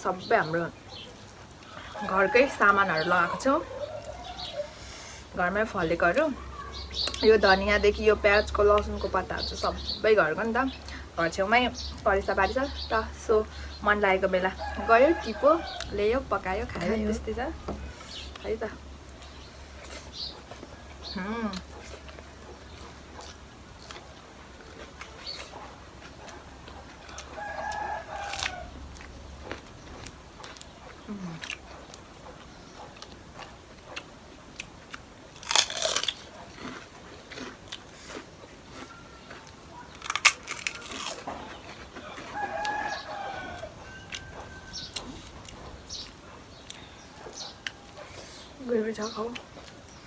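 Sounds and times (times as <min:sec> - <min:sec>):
rooster crowing: 0:01.7 - 0:04.9, 0:14.4 - 0:17.9, 0:27.0 - 0:29.6, 0:42.0 - 0:46.1
eating clicks and crunches: 0:06.1 - 0:13.8, 0:14.6 - 0:48.3.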